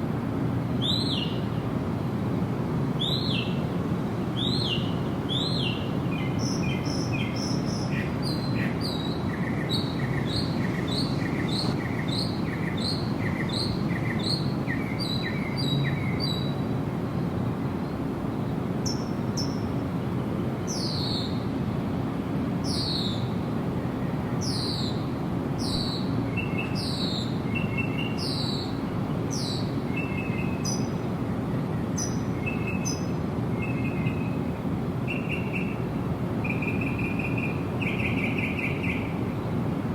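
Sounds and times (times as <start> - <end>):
low rushing background noise: 0.0 - 39.9
birds chirping: 0.8 - 1.7, 3.0 - 3.7, 4.3 - 16.6, 25.6 - 31.0, 32.0 - 39.3.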